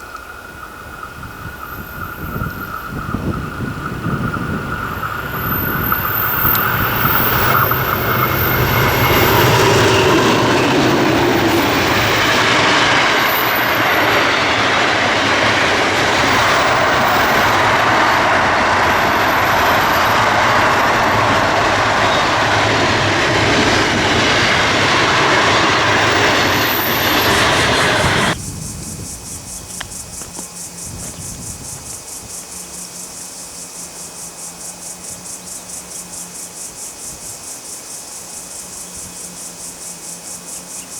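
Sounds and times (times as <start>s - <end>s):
freight train passing: 0.0s - 40.9s
fast high-pitched pulsing: 1.1s - 29.2s.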